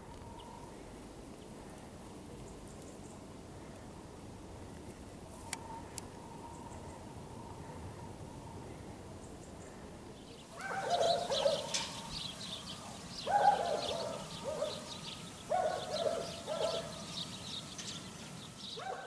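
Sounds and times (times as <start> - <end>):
small birds chirping: 4.7 - 19.0.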